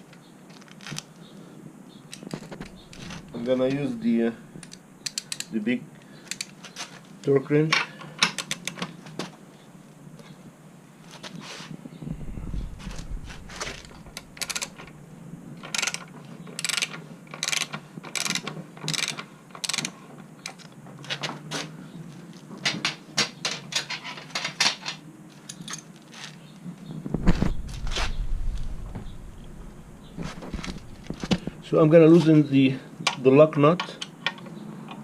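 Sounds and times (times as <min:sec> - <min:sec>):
torque wrench ratchet clicking: 0:14.2 - 0:14.9, 0:16.6 - 0:19.9.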